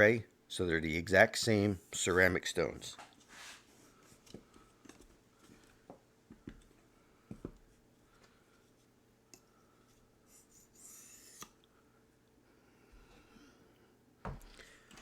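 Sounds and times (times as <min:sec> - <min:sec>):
light scrape: 0:03.2 - 0:03.9.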